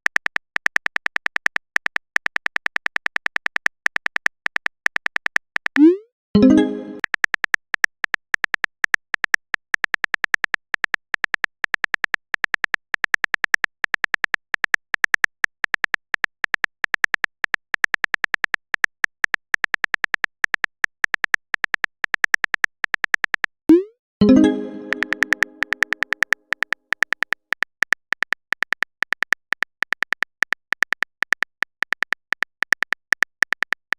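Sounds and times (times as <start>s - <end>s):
keyboard tap clicks: 24.3s - 26.2s.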